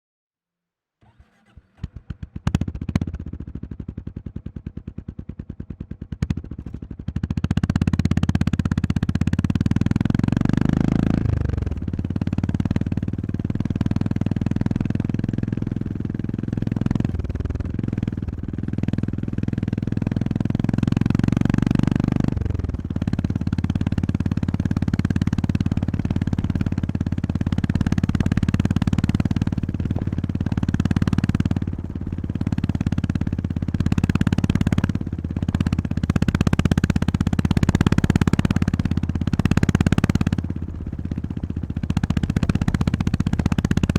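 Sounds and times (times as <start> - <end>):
motorcycle engine: 1.0 - 43.9.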